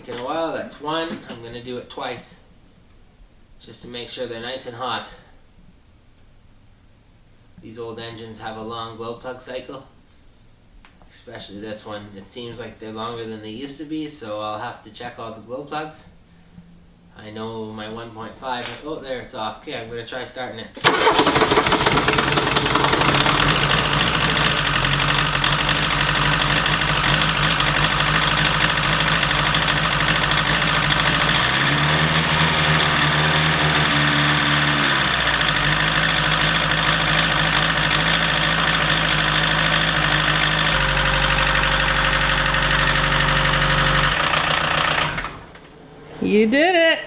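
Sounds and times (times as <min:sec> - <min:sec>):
diesel engine idling and revving: 0:20.8 - 0:45.3.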